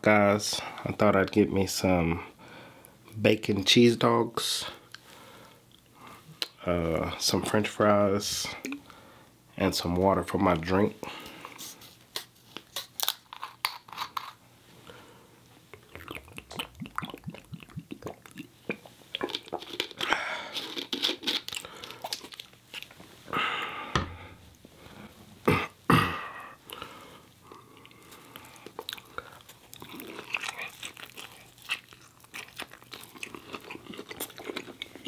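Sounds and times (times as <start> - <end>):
person chewing fries: 11.4 - 14.4, 15.6 - 24.7, 26.4 - 35.0.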